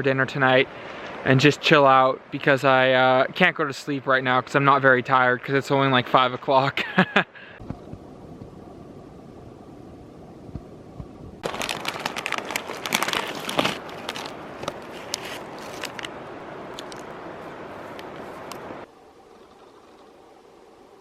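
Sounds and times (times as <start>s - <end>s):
plastic packaging crinkling: 11.4s - 16.1s.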